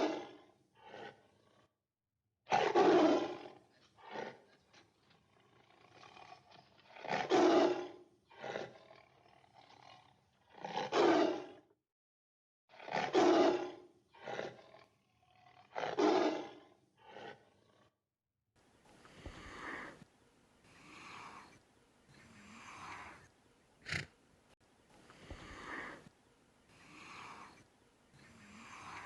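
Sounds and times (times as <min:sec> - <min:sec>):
large animal roaring: 0:00.0 - 0:01.7.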